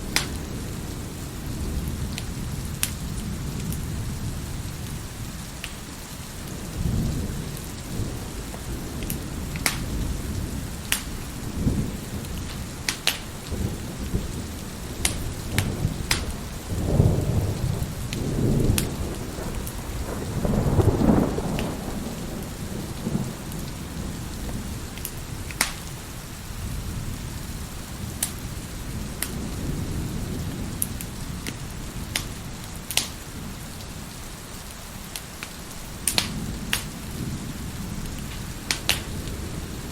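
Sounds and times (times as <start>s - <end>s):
rolling thunder: 0.0s - 34.2s, 36.0s - 39.9s
crackling wood fire: 0.0s - 39.9s
steady rain: 0.0s - 39.9s.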